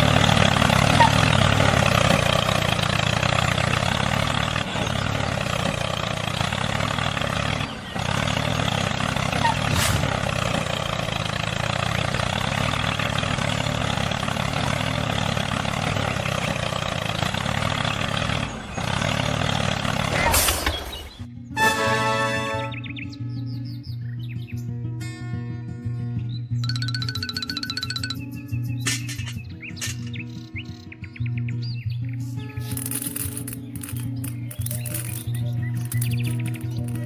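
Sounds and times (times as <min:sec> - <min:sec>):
tractor engine running: 0:00.0 - 0:20.2, 0:32.0 - 0:37.0.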